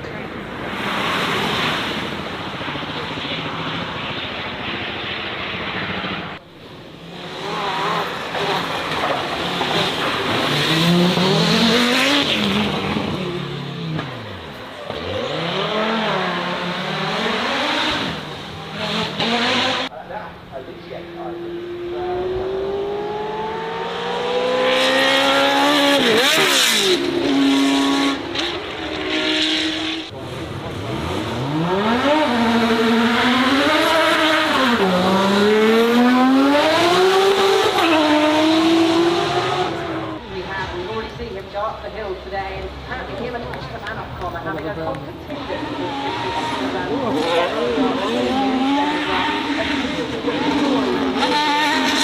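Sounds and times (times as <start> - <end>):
rush of tyre and wind noise: 0.0 - 19.9
engine revving up: 7.1 - 19.9, 20.9 - 40.3, 45.3 - 52.0.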